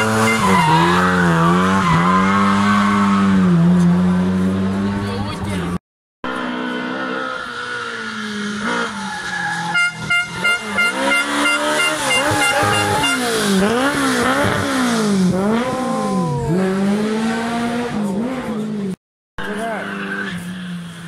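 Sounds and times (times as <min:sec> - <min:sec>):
horn short blasts: 0:00.0 - 0:01.1, 0:09.7 - 0:13.9
rally car engine revving: 0:00.0 - 0:21.0.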